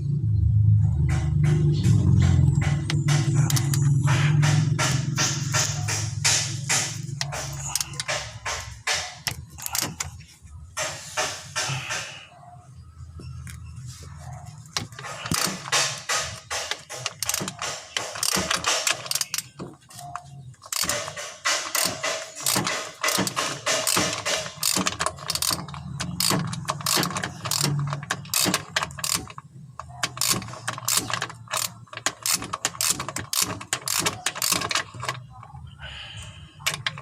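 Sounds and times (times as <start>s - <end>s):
ratchet wrench clicking: 2.6s - 10.2s, 14.8s - 19.6s, 20.6s - 35.2s, 36.6s - 37.0s.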